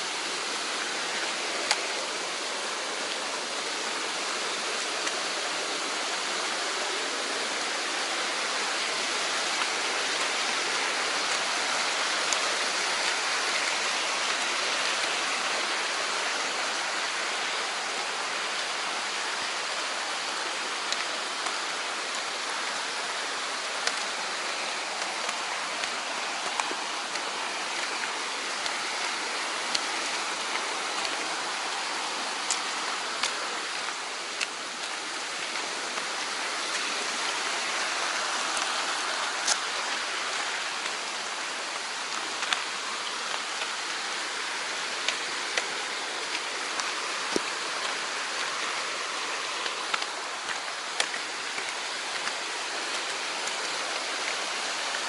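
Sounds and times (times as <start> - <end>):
stream flowing: 0.0 - 55.0
faint sharp clicks: 49.6 - 54.3.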